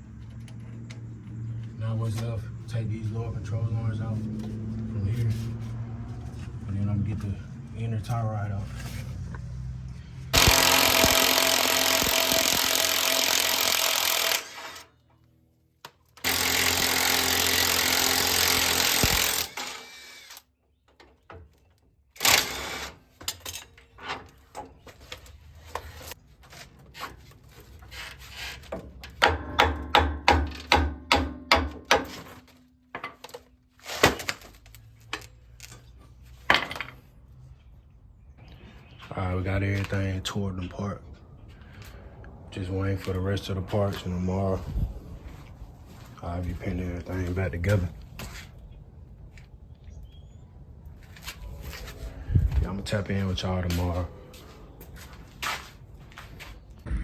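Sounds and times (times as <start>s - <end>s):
power tool running: 10.3s - 14.9s, 16.2s - 20.4s, 22.2s - 23.0s.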